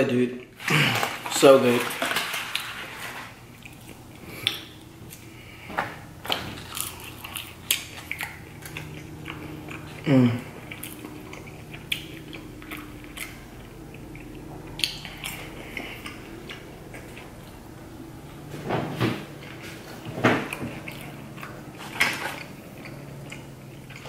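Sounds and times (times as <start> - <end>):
chewing crispy food: 0.4 - 18.5, 19.4 - 24.0.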